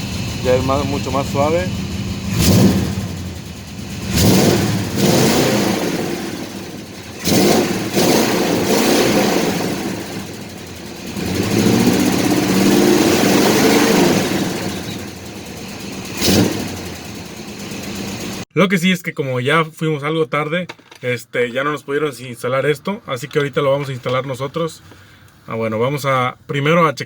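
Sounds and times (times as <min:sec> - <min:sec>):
pickup truck engine revving: 0:00.0 - 0:18.4.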